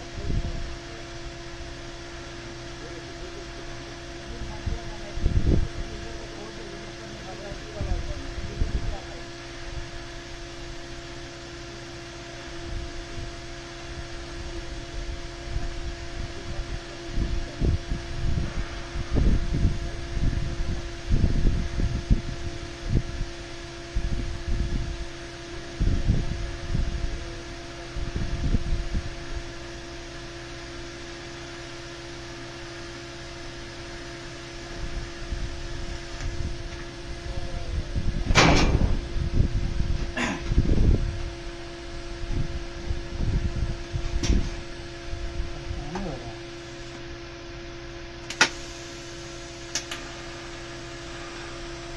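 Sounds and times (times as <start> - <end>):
steady electrical hum: 0.0 - 51.9
low rumbling: 11.8 - 29.8, 34.6 - 51.9
even hiss: 48.3 - 51.9.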